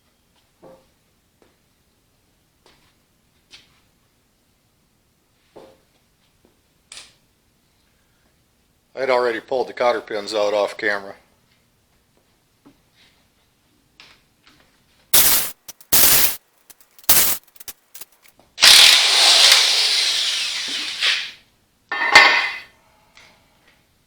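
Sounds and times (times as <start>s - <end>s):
power tool running: 15.2s - 21.4s.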